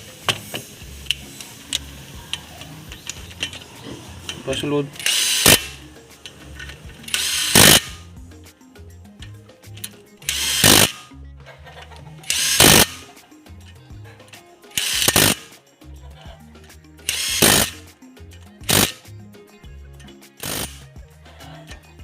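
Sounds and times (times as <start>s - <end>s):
background music with bass line: 0.0s - 22.0s
power drill bursts: 3.0s - 5.8s, 7.0s - 8.0s, 10.2s - 11.0s, 12.3s - 13.1s, 14.8s - 15.5s, 17.1s - 17.8s, 18.7s - 19.0s, 20.4s - 20.8s.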